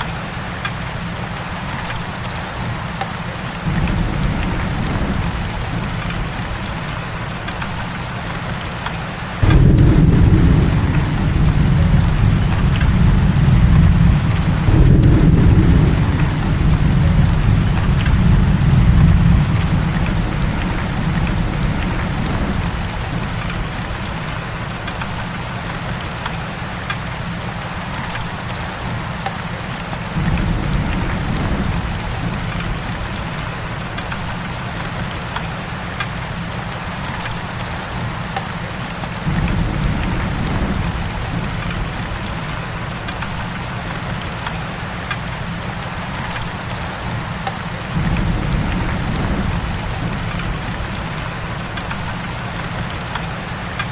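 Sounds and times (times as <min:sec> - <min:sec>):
heavy rain falling: 0:00.0 - 0:53.9
low rumble: 0:09.4 - 0:24.2.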